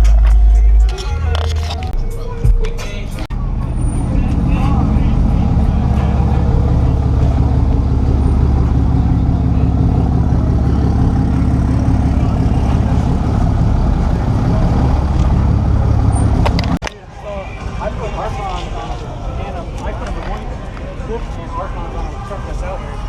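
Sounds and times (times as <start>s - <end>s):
truck engine running: 3.0s - 16.8s.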